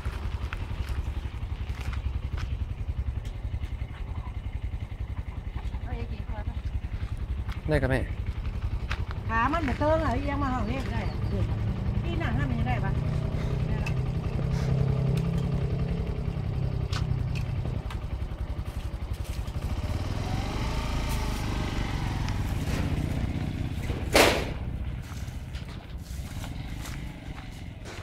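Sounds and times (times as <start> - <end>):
motorcycle engine pulling away: 0.0 - 28.0
loud sharp crack: 24.1 - 24.6.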